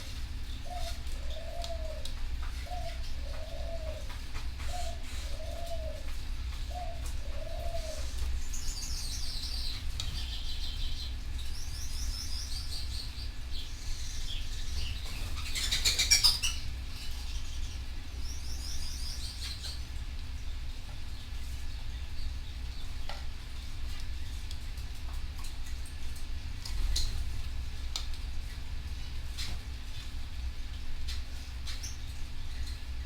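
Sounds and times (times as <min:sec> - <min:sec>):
canaries singing trills: 0:00.0 - 0:25.8, 0:26.7 - 0:27.6, 0:31.0 - 0:33.0
dove cooing softly: 0:00.1 - 0:09.7.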